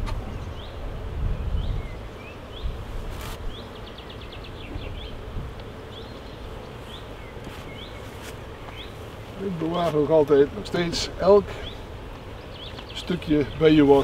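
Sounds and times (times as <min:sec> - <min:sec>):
honeybees buzzing: 0:00.0 - 0:14.0
hive tool scraping wax: 0:02.9 - 0:14.0.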